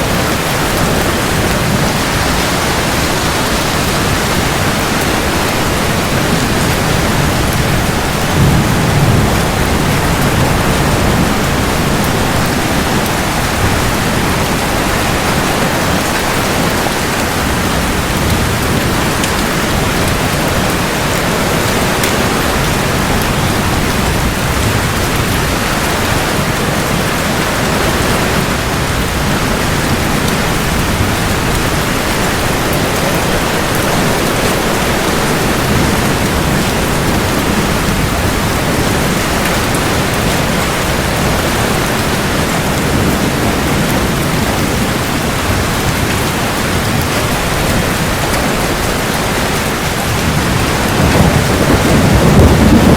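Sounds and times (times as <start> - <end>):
low rumble of thunder: 0.0 - 27.7, 49.9 - 52.9
heavy rain falling: 0.0 - 52.9.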